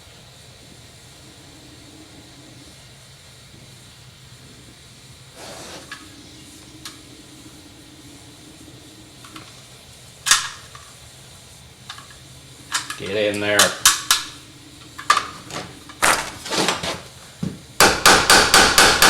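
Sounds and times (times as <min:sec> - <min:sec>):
steady low hum: 0:00.0 - 0:19.0
hammer striking steel rivet: 0:17.8 - 0:19.0.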